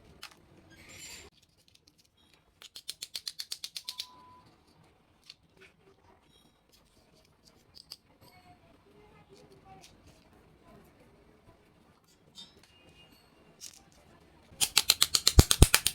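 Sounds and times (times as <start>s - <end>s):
sharp plastic clicks: 2.6s - 4.1s, 14.6s - 15.9s.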